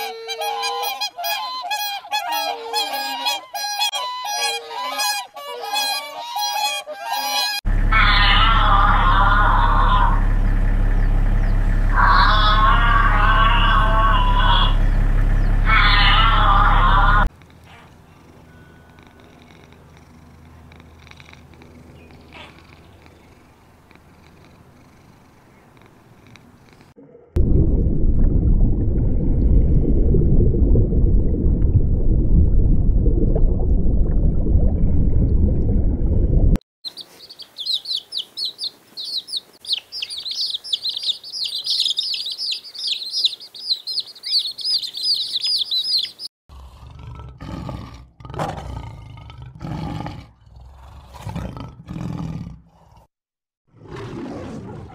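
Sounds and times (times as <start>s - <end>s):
loud low rumbling: 7.7s - 17.3s, 27.4s - 36.6s
small birds chirping: 17.4s - 27.0s, 36.8s - 46.3s
big cat roaring: 46.5s - 53.1s, 53.7s - 54.9s.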